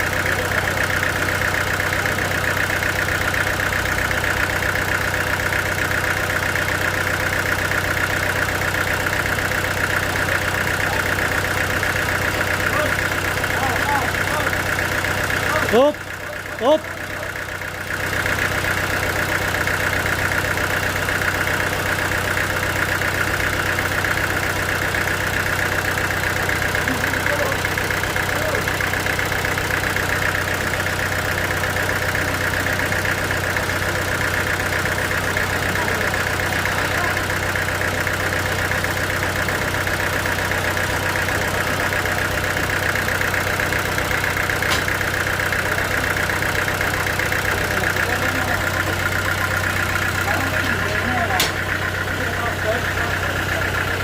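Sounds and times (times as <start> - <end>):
sawmill machine low hum: 17.3 - 54.0.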